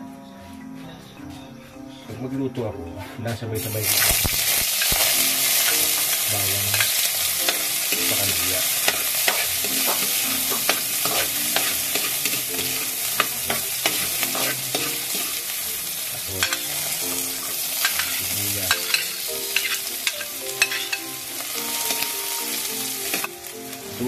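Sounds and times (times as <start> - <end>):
garlic frying in oil: 3.7 - 24.0
metal spoon scraping a wok: 8.8 - 15.5, 16.4 - 21.1.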